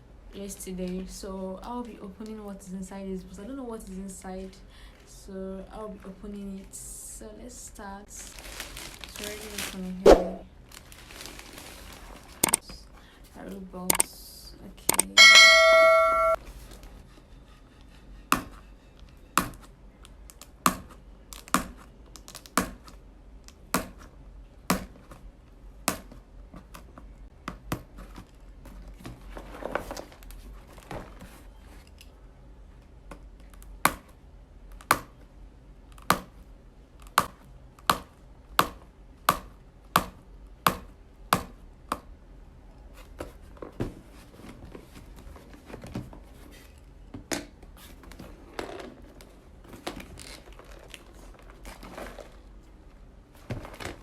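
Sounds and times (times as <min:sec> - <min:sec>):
rustling: 0:08.0 - 0:12.8, 0:47.8 - 0:54.0
sharp clicks: 0:13.9 - 0:14.1, 0:14.9 - 0:15.2.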